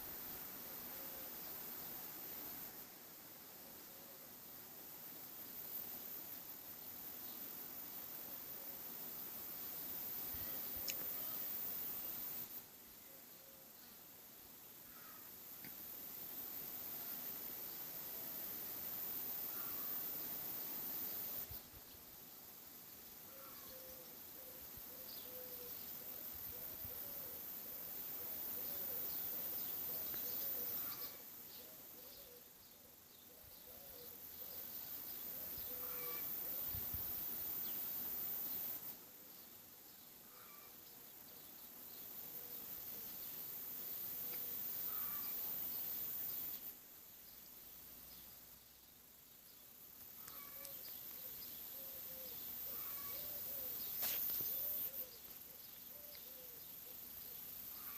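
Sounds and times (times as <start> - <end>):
faint steady hiss: 0.0 - 57.9
dove cooing: 23.3 - 27.4, 28.2 - 29.1, 51.8 - 53.8, 54.5 - 55.2
birds cooing: 23.3 - 27.5, 28.2 - 34.6, 35.3 - 36.8, 44.2 - 45.5, 50.2 - 57.9
small birds chirping: 28.1 - 57.9
bird chirps: 49.4 - 57.9.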